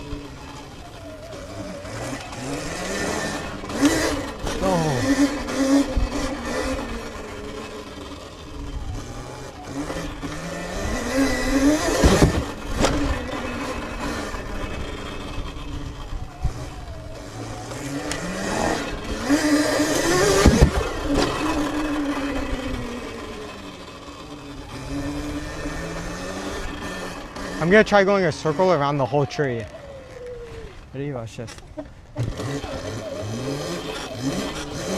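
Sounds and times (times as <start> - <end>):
electric motorbike motor whining: 0.0 - 34.9
sharp knocks: 11.9 - 13.1.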